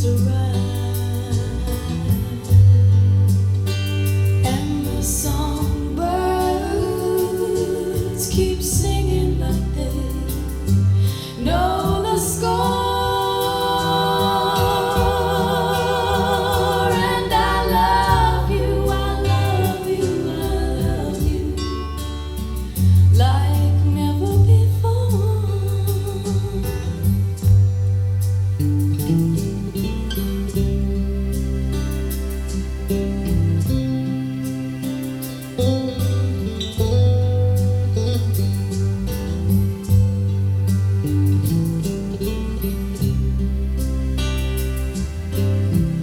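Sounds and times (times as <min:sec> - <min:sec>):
woman singing with vibrato: 0:00.0 - 0:03.0, 0:04.4 - 0:27.4
bass line: 0:00.0 - 0:46.0
guitar: 0:00.0 - 0:46.0.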